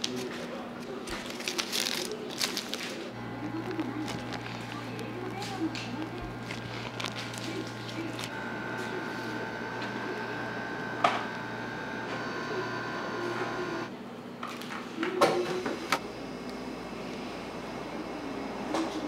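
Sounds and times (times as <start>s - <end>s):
machine hum: 3.1s - 14.2s.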